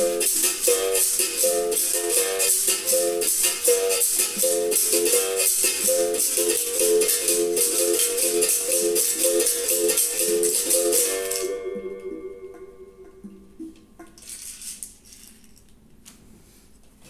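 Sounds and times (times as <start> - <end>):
berimbau twanging notes: 0.0 - 14.2
congas: 0.0 - 14.8
shaker rattle hiss: 14.2 - 15.6.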